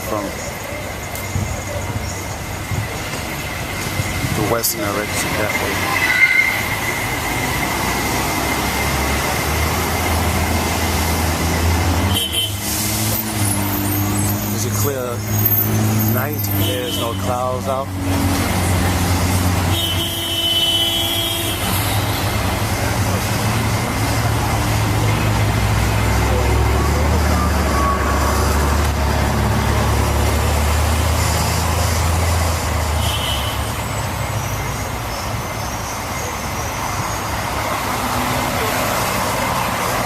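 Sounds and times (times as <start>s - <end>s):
street traffic rumble: 0.0s - 40.0s
brief high squeals: 5.8s - 6.9s.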